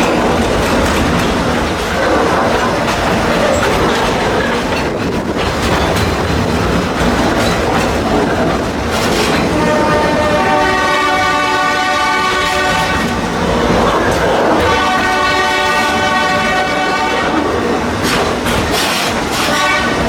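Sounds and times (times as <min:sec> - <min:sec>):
train wheels rumbling on rail: 0:00.0 - 0:20.0
locomotive horn blast: 0:09.4 - 0:17.7, 0:19.3 - 0:20.0.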